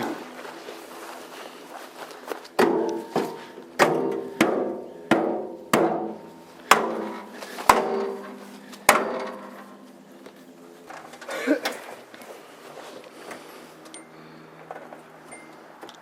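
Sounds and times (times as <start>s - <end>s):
stick striking car metal: 2.6s - 9.8s.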